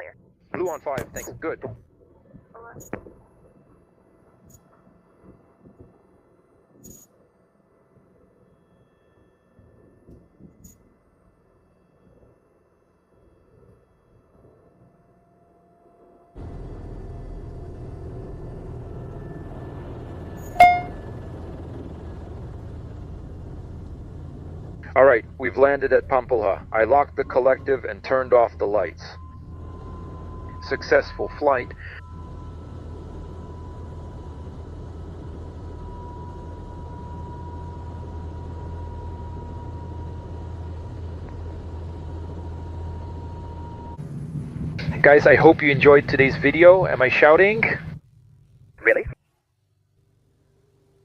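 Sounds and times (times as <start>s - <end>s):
helicopter running: 16.4s - 48.2s.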